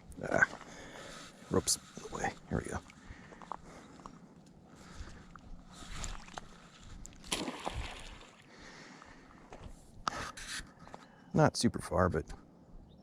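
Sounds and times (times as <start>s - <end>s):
trap splashing into water: 7.2s - 8.4s.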